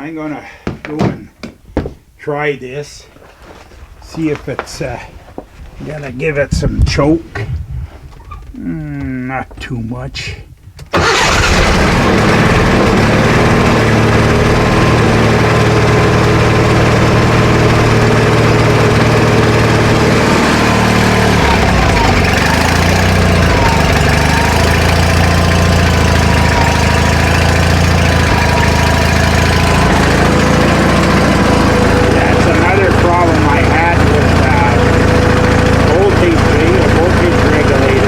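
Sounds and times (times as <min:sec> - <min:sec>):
small gasoline engine running: 0:11.0 - 0:38.0.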